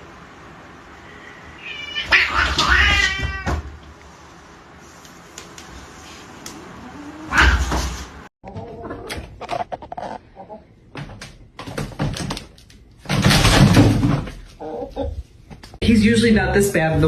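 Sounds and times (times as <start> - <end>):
cat meowing: 1.6 - 3.6, 7.0 - 7.7.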